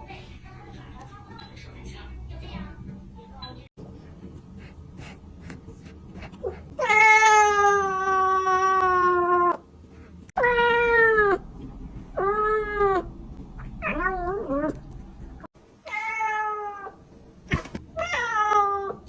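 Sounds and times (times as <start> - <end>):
cat meowing: 6.8 - 9.6, 10.4 - 11.4.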